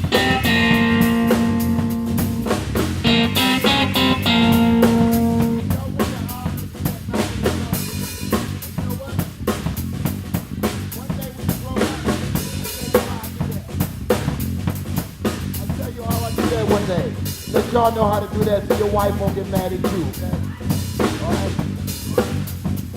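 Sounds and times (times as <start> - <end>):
held electric guitar note: 0.0 - 5.8
drum kit groove: 0.0 - 22.9
electric bass: 0.0 - 22.9.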